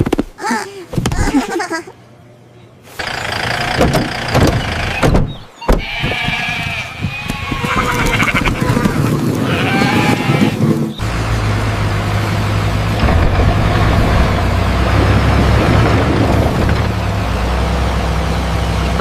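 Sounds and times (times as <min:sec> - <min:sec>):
sheep bleating: 0:05.8 - 0:10.6.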